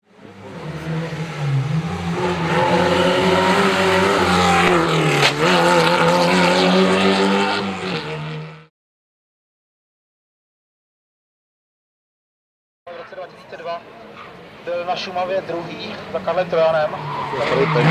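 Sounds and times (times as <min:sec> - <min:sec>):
rally car engine revving hard: 0:00.1 - 0:08.7, 0:16.4 - 0:17.9.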